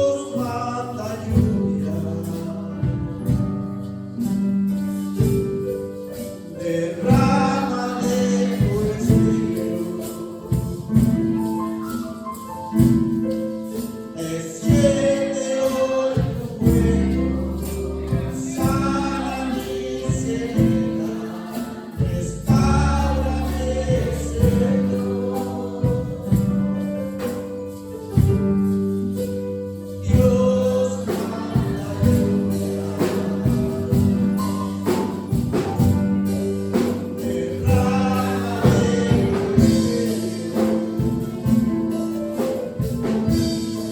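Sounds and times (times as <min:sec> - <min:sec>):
gospel worship music: 0:00.0 - 0:43.9
tambourine: 0:00.0 - 0:43.9
sustained bass: 0:16.2 - 0:27.2, 0:27.9 - 0:43.9.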